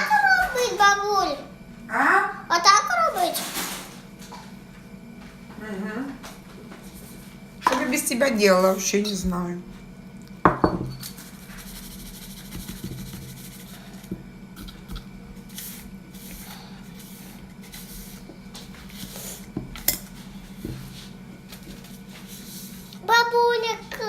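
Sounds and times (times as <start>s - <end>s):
steady low hum: 0.0s - 24.0s
dishes and utensils clinking: 10.5s - 11.2s.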